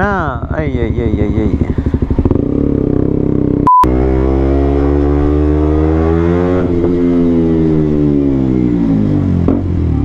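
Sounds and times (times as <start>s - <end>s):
motorcycle engine revving: 0.0s - 10.0s
short beep: 3.7s - 3.9s.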